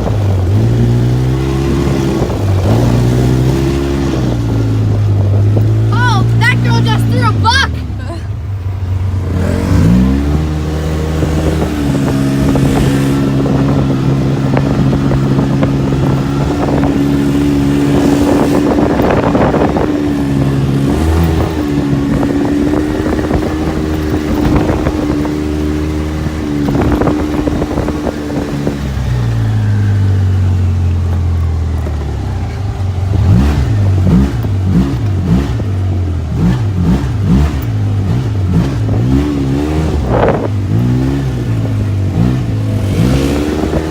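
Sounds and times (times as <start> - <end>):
off-road vehicle engine revving: 0.0 - 43.9.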